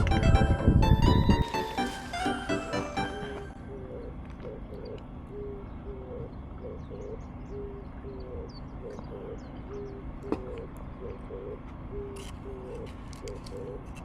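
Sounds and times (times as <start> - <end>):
bird cooing: 3.7 - 13.8.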